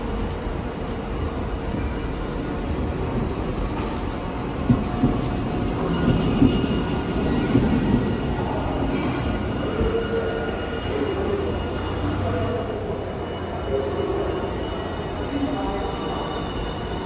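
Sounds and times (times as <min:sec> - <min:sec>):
streetcar rumbling on rails: 0:00.0 - 0:17.0
high wheel squeal: 0:03.8 - 0:17.0.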